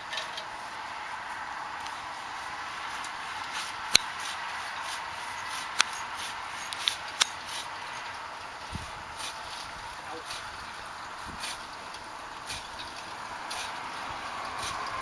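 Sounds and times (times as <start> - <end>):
hand saw sawing wood: 2.9 - 8.0, 11.2 - 15.0.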